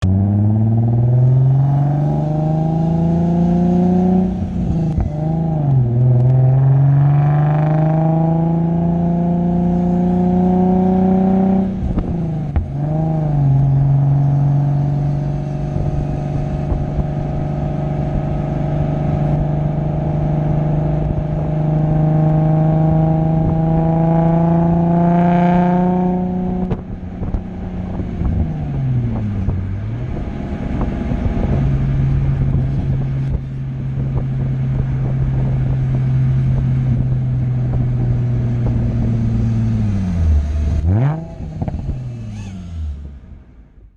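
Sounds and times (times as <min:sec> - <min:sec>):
car engine accelerating hard: 0:00.0 - 0:43.6.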